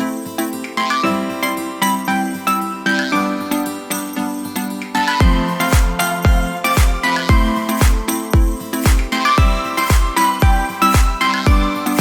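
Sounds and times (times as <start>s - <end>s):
upbeat music with kick drum: 5.1s - 12.0s.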